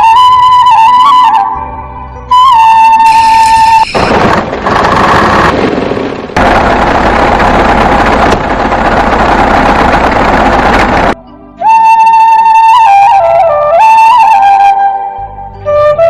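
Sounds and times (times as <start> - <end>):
flute music: 0.0 - 4.3, 11.1 - 16.0.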